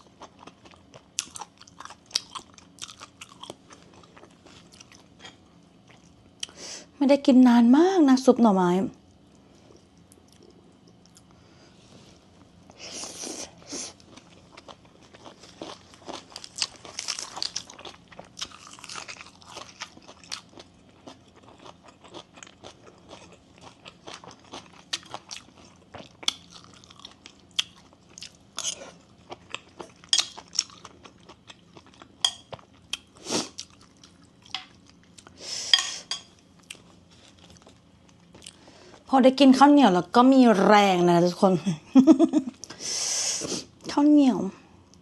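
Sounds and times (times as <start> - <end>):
person chewing and crunching food: 0.0 - 6.6, 9.0 - 11.4, 12.2 - 39.1.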